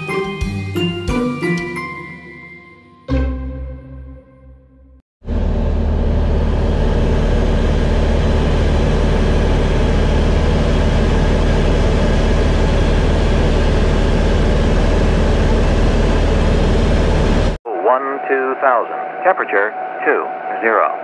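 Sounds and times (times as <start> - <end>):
light aircraft engine drone: 5.3 - 17.6.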